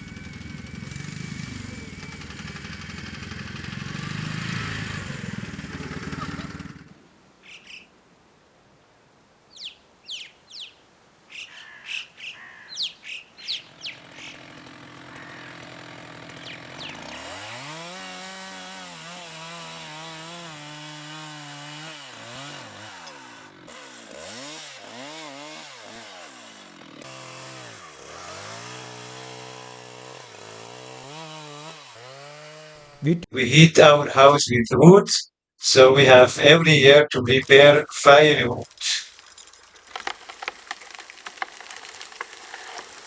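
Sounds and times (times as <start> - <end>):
chainsaw cutting wood: 0.0 - 7.0, 13.4 - 33.3, 37.4 - 43.0.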